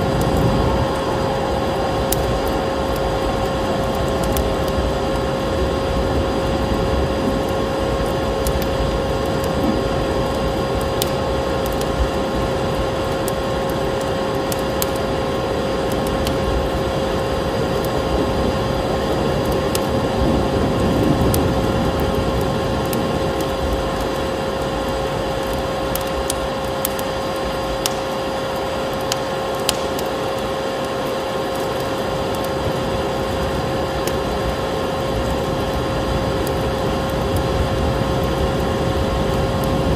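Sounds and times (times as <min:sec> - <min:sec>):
rushing air: 0:00.0 - 0:08.3
vacuum cleaner motor hum: 0:00.0 - 0:11.4
wood fire crackling and popping: 0:00.0 - 0:39.9.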